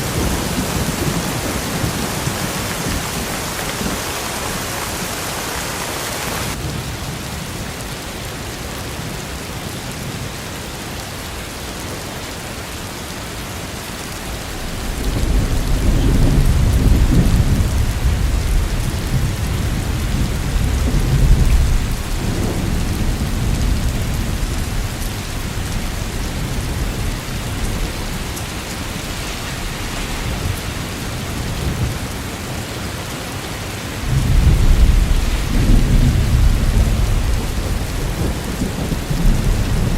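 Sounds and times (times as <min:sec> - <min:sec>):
thunder rumbling: 0:00.0 - 0:05.2, 0:14.2 - 0:32.6, 0:33.9 - 0:39.9
steady rain: 0:00.0 - 0:39.9.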